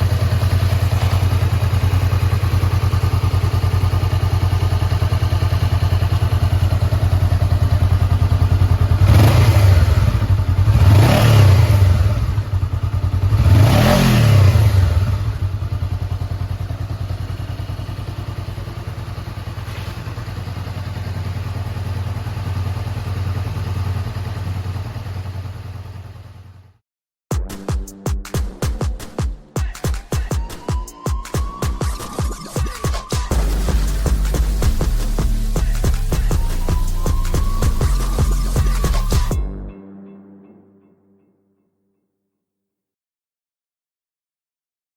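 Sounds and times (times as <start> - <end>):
motorcycle engine idling and revving: 0.0 - 26.8, 31.4 - 39.7.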